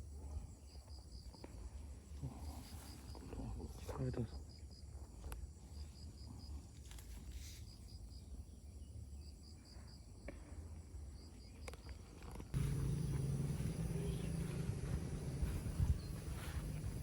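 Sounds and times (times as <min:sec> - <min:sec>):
insect chirping: 0:00.0 - 0:17.0
low steady rumble: 0:12.6 - 0:17.0.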